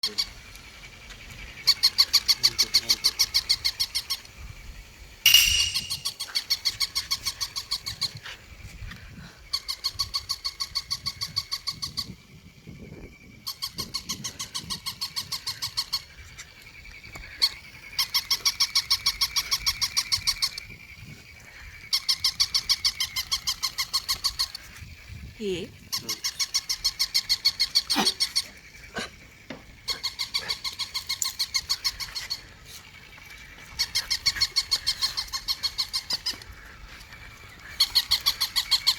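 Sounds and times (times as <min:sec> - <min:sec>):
sharp click: 0:05.3 - 0:06.2.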